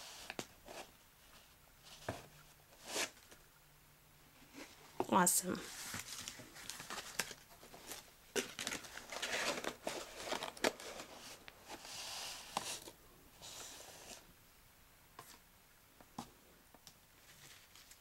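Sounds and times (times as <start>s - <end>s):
soft sliding paper rustles: 4.4s - 14.3s
paper rustling: 5.6s - 14.2s, 17.2s - 18.0s.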